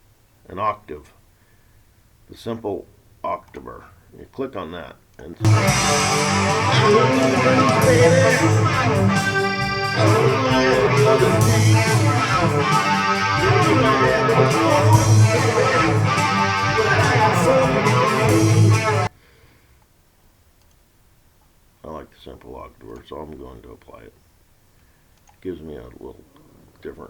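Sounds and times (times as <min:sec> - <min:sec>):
rock music with singing: 0:05.4 - 0:19.1.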